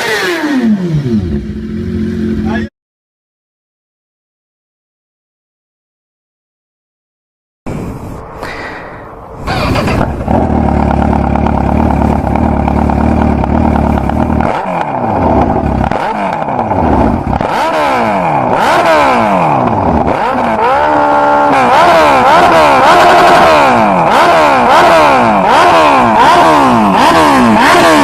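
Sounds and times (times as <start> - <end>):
motorcycle engine idling and revving: 0.0 - 2.7, 9.2 - 28.0.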